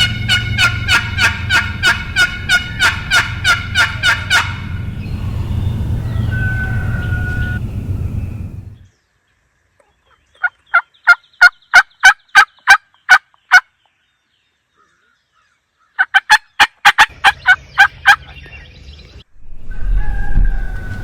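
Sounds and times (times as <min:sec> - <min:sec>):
turkey yelping: 0:00.0 - 0:07.6, 0:16.0 - 0:18.4.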